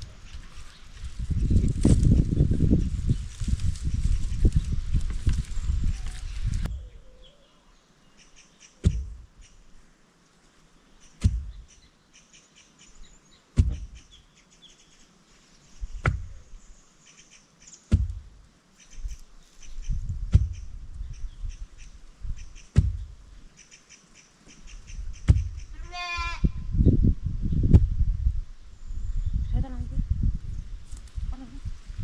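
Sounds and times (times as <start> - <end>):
faint birds chirping: 0.0 - 27.7, 28.6 - 31.7
heavy knocks: 13.6 - 14.0, 17.9 - 18.3, 20.3 - 20.7, 22.8 - 23.1.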